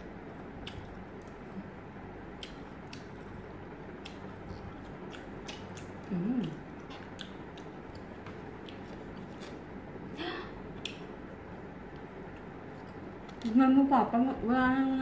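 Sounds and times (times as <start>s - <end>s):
chewing meat: 0.2s - 9.8s.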